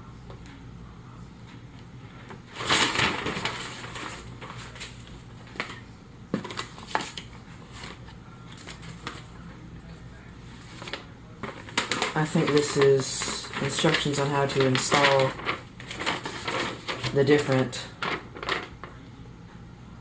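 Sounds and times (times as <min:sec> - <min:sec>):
paper crinkling rustle: 0:02.5 - 0:09.5, 0:10.5 - 0:19.0.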